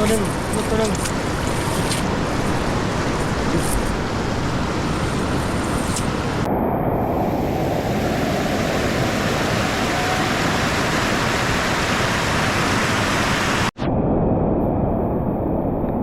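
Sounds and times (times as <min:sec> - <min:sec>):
floodwater rushing: 0:00.0 - 0:06.5, 0:07.8 - 0:13.7.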